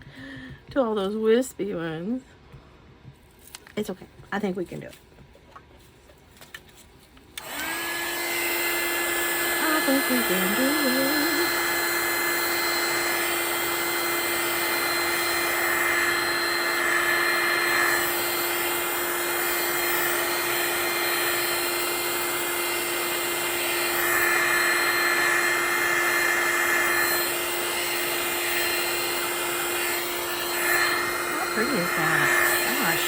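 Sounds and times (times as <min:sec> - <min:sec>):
heat gun whirring: 0:07.3 - 0:33.0.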